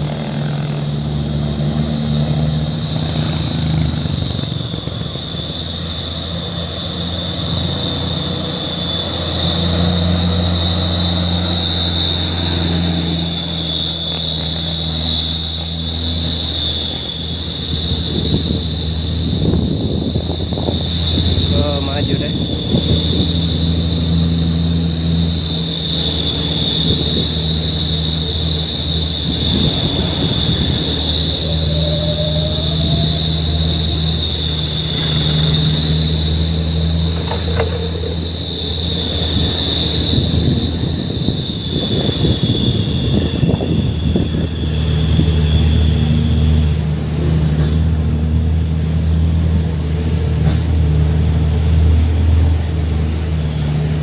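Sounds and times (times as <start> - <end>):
truck engine running: 0.0 - 54.0
high-pitched shrill tone: 0.8 - 48.0
short air hisses: 47.2 - 48.0, 50.3 - 50.9.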